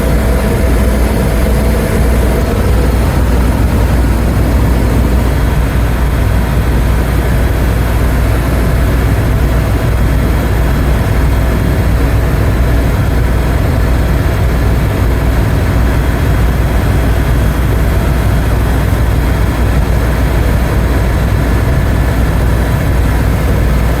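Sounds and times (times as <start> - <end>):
faint steady tones: 0.0 - 6.2
helicopter rotor and engine drone: 0.0 - 24.0.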